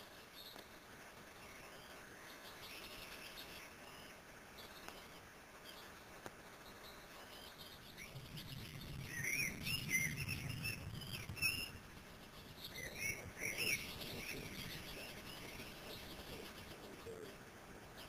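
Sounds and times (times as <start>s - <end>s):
faint low rumble: 0.0s - 18.0s
high bird chirps: 6.6s - 11.8s, 12.4s - 17.3s.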